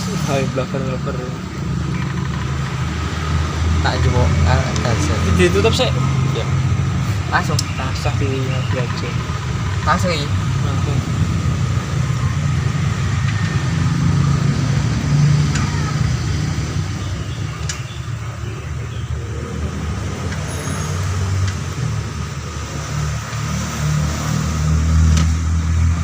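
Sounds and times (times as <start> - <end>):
vehicle engine humming: 0.0 - 26.0
sharp clicks: 1.8 - 2.9, 17.5 - 18.0, 20.2 - 21.7.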